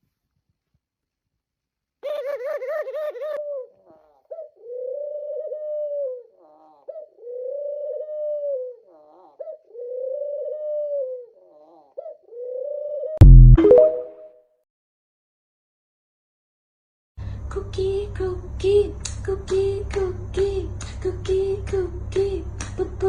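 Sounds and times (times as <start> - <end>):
dove cooing: 2.0 - 13.2.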